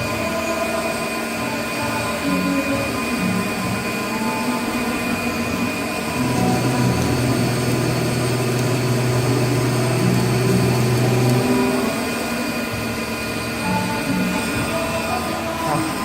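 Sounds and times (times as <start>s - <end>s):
lathe machine hum: 0.0s - 16.0s
deep motor hum: 5.4s - 13.0s.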